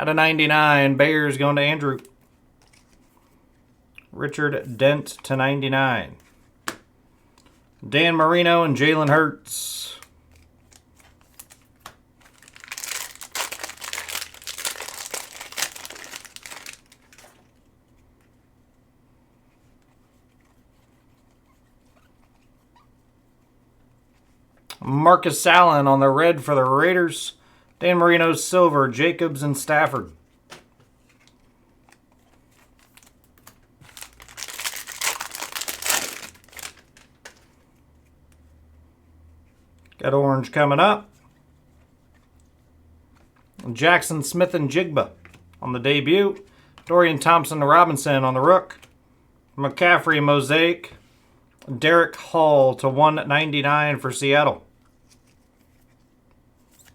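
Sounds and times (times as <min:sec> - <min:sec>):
foil wrapper crinkling: 0:09.9 - 0:17.6, 0:31.2 - 0:37.6.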